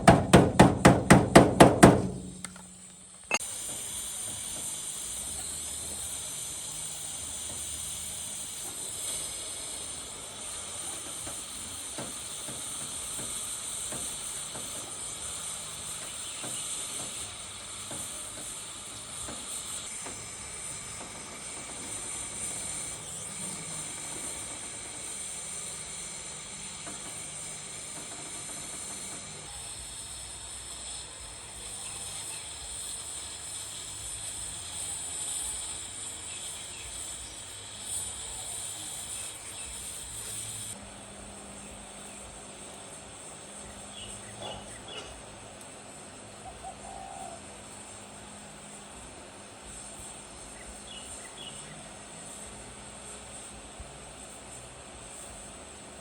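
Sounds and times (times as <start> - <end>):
hammer blows: 0.0 - 4.8
steady hiss: 0.0 - 56.0.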